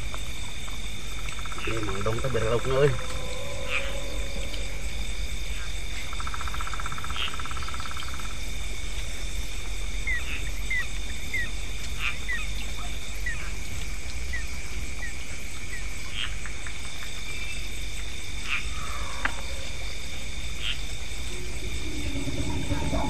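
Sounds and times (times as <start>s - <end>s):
high insect drone: 0.0s - 23.0s
fast frog trill: 1.5s - 7.9s.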